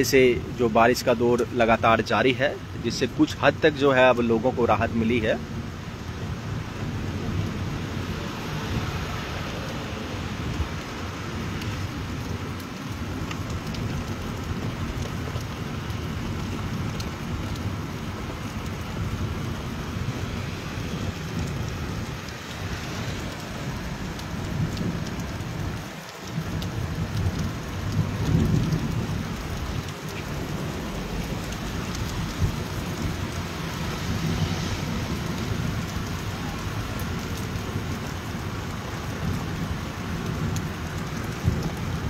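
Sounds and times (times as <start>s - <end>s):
heavy rain on rooftop: 0.0s - 42.0s.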